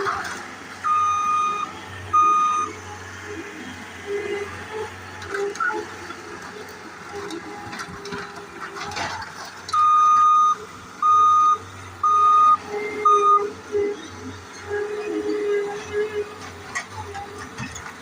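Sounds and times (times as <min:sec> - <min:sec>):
engine running: 0:00.0 - 0:18.0
backup alarm beeping: 0:00.8 - 0:02.8, 0:09.7 - 0:13.5
debris clattering: 0:07.2 - 0:09.9.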